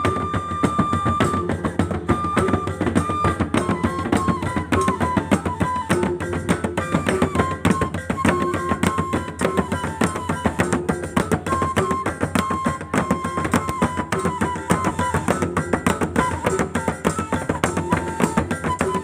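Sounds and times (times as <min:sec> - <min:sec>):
tuned barrel drums: 0:00.0 - 0:19.0
wind instrument long notes: 0:00.0 - 0:19.0.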